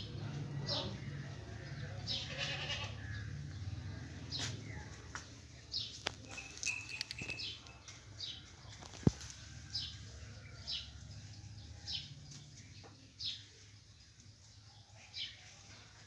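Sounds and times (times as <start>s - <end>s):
bird chirping: 4.3s - 9.2s.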